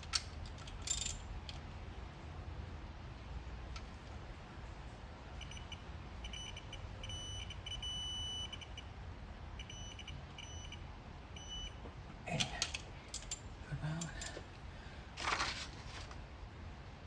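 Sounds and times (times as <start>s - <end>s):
held beep tone: 5.4s - 8.8s, 9.6s - 10.8s.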